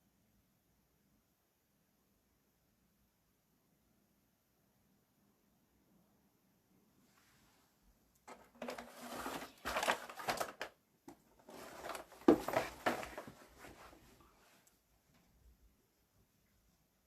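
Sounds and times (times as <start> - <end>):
rustling and clattering: 8.2 - 15.3.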